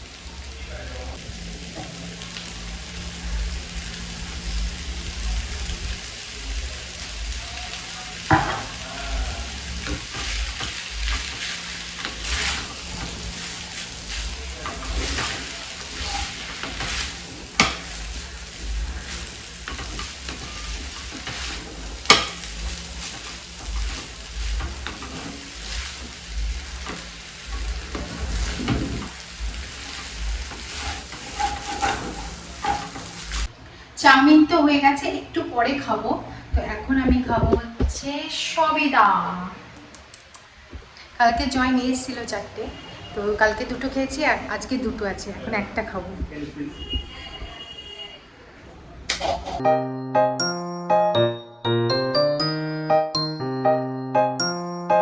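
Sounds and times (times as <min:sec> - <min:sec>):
noodles sizzling in a pan: 0:00.0 - 0:33.5
spatula scraping and stirring: 0:29.8 - 0:33.5.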